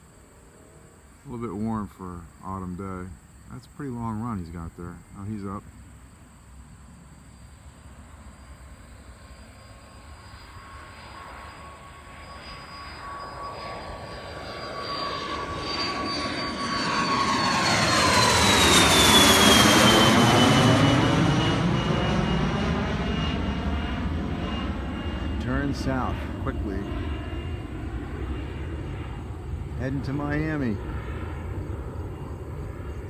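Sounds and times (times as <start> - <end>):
jet climbing and passing by: 8.0 - 33.0.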